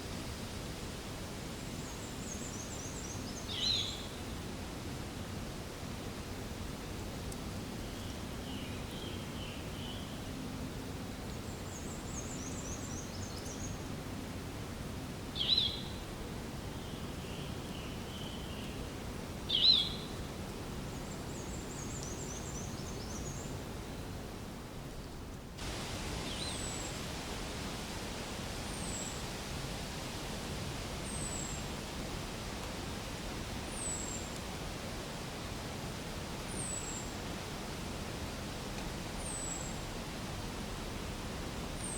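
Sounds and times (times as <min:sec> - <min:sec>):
outdoor background hiss: 0:00.0 - 0:41.9.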